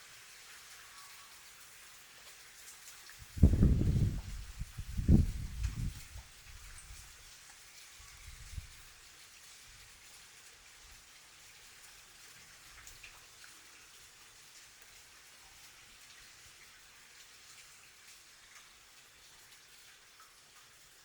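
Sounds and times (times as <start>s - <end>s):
rain falling softly: 0.0s - 21.0s.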